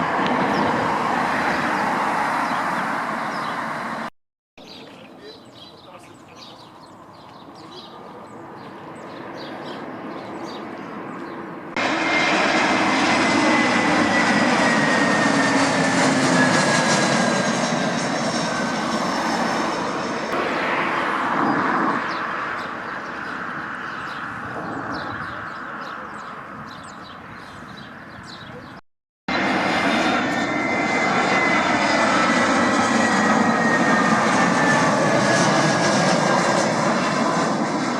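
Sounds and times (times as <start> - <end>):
small plane engines passing: 0.0 - 4.1, 4.7 - 37.9
engine whine falling in pitch: 20.1 - 22.8.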